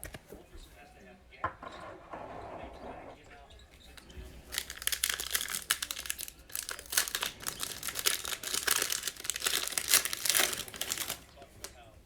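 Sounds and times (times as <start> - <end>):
foil wrapper crinkling and tearing: 3.9 - 11.7.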